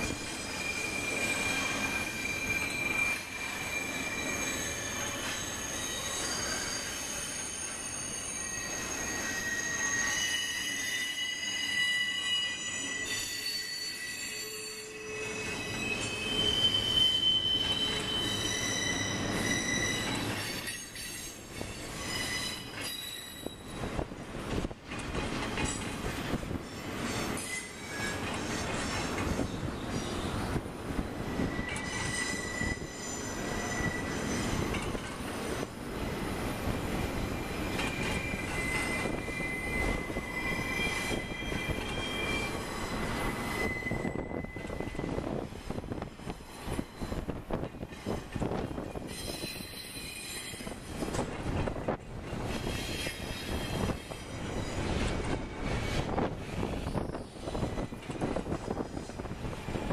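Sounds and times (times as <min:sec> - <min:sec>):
train wheels squealing: 0:00.0 - 0:24.0, 0:25.1 - 0:35.7, 0:36.5 - 0:59.9.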